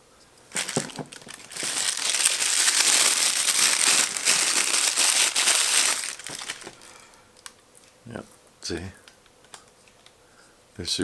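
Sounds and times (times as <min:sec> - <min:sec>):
packaging crinkling: 0:00.5 - 0:07.6.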